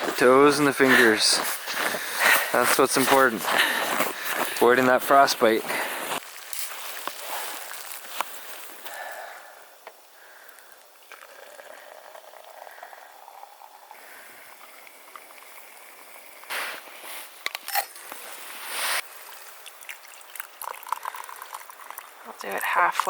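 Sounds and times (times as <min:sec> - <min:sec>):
water bubbling in a pot: 0:10.8 - 0:16.5, 0:19.0 - 0:23.0
bursts of hiss: 0:16.5 - 0:17.4.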